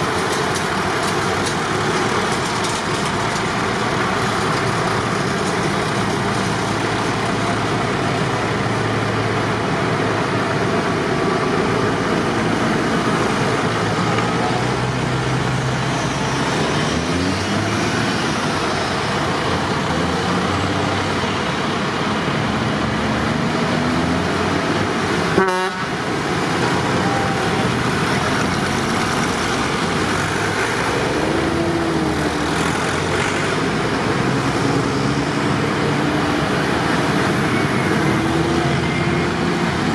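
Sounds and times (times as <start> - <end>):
tractor engines passing by: 0.0 - 39.9.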